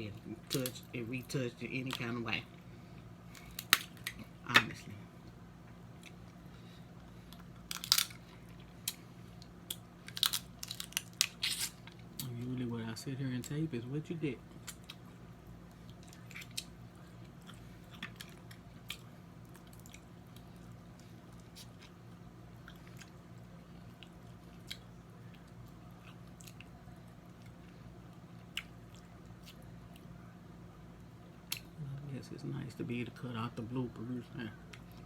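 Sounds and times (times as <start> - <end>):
steady low hum: 0.0 - 35.0
crab shell cracking: 3.3 - 4.7, 7.4 - 8.2, 9.6 - 12.3
faint chewing: 14.6 - 22.0, 22.6 - 30.1.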